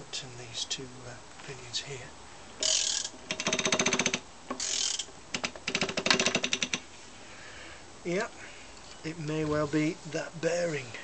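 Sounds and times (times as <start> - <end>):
crankshaft rasping: 2.6 - 5.1
ratchet wrench clicking: 2.6 - 6.8.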